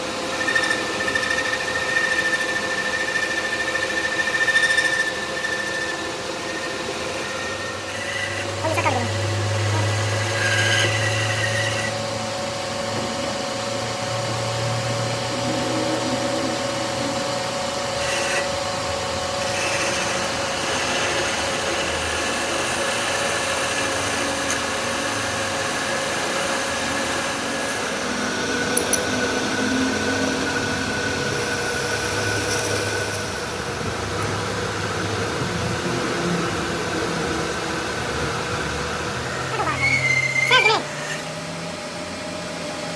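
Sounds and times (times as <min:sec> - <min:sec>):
constant machine hum: 0:00.0 - 0:42.9
machine tool cutting: 0:19.4 - 0:37.5.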